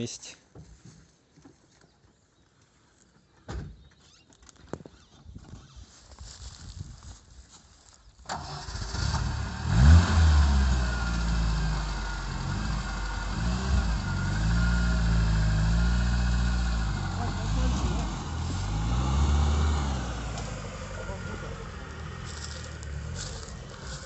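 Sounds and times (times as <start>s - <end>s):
petrol engine starting and idling: 8.2s - 24.0s.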